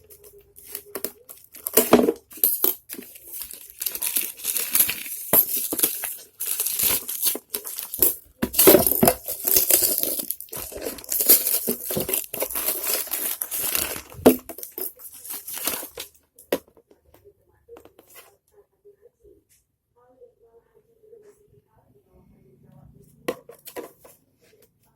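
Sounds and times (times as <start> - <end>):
packaging tearing and crinkling: 3.0 - 8.0, 8.6 - 16.0.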